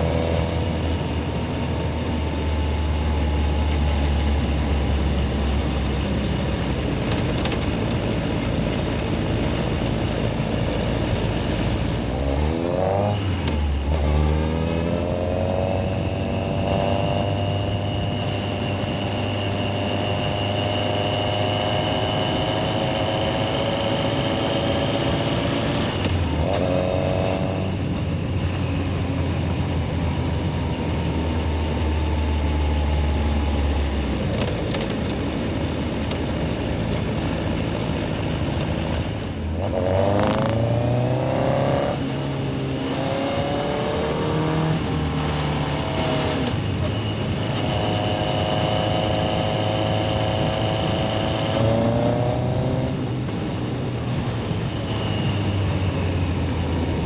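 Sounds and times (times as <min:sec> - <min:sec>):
motorcycle engine idling and revving: 0:00.0 - 0:57.0.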